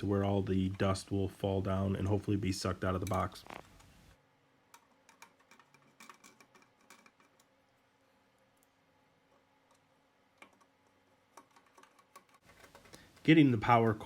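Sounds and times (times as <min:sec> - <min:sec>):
faint clicks and ticks: 0:04.7 - 0:13.3.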